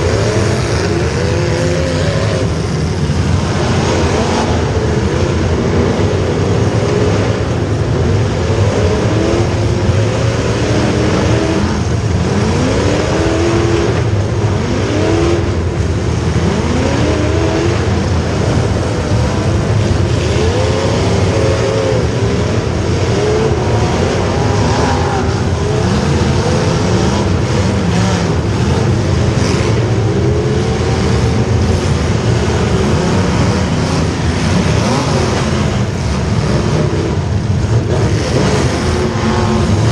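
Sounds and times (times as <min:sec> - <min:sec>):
car engines revving: 0:00.0 - 0:39.9.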